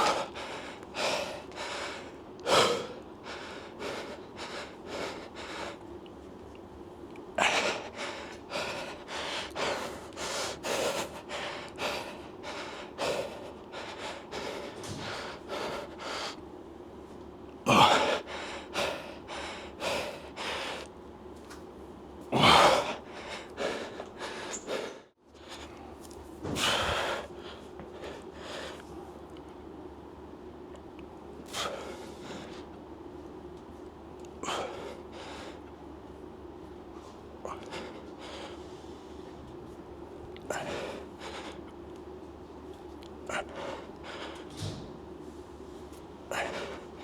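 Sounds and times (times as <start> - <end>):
person breathing hard: 0.0 - 5.9, 7.4 - 16.4, 17.7 - 20.9, 22.3 - 29.2, 37.1 - 39.3, 40.5 - 41.8, 43.3 - 44.8, 46.2 - 47.0.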